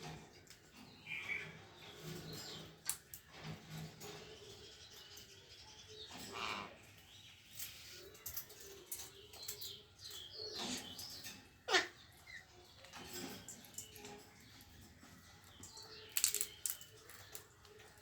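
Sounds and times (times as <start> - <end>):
parrot calling: 11.6 - 12.4.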